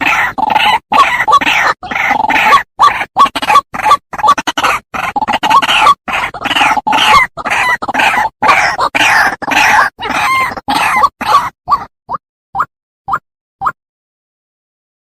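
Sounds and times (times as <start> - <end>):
bird call harsh repeated notes: 0.0 - 11.8.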